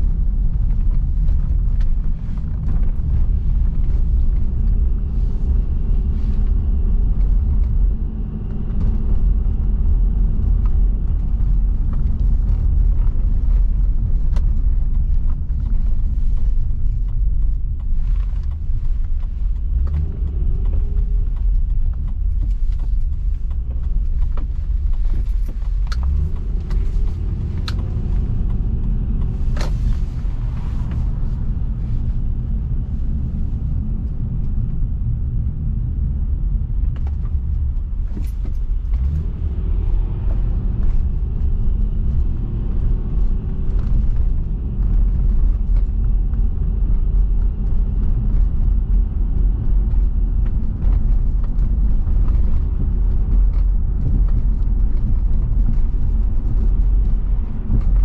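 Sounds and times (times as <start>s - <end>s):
car tyre and engine rumble: 0.0s - 58.0s
small clicks and rattles: 8.5s - 32.2s.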